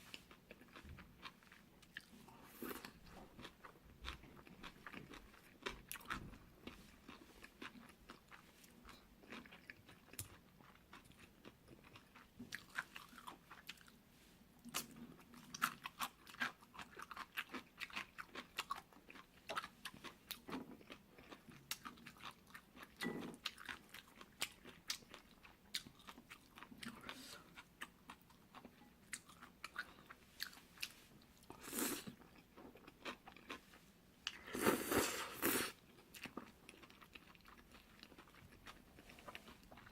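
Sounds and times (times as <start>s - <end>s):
close chewing of noodles: 0.1s - 14.0s, 14.6s - 39.9s.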